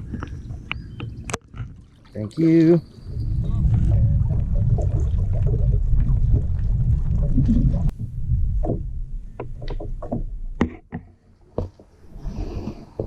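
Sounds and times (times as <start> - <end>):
loud low rumble: 3.0 - 9.4.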